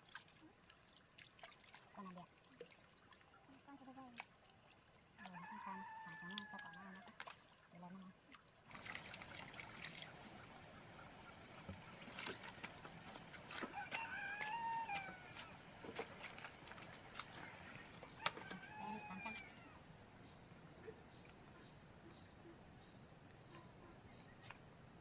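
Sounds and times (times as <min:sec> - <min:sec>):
faint rooster crowing: 0:05.3 - 0:07.1, 0:13.6 - 0:15.6, 0:18.2 - 0:19.8.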